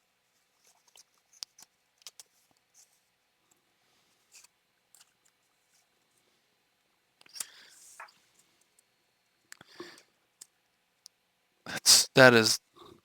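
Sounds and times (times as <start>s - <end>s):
cards being handled and flipped: 0.5s - 3.1s.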